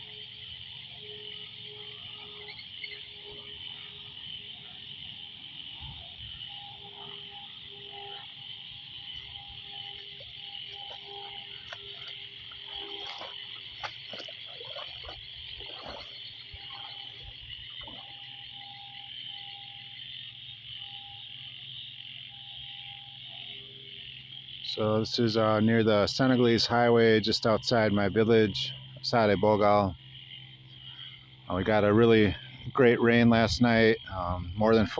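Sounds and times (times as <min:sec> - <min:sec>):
large frog calling in pulsed notes: 0:00.0 - 0:34.9
small frogs trilling: 0:00.0 - 0:34.9
loud frog croaks: 0:06.8 - 0:20.1.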